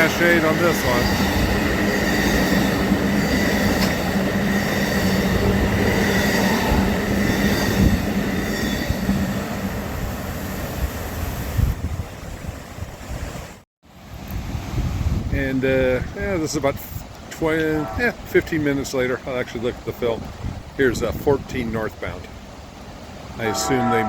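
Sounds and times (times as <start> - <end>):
passenger train rolling past: 0.0 - 12.3, 23.1 - 24.0.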